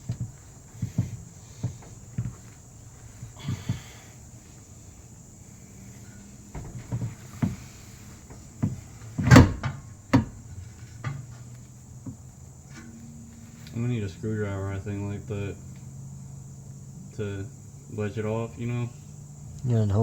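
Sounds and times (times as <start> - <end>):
metallic knocks and clunks: 6.5 - 11.5.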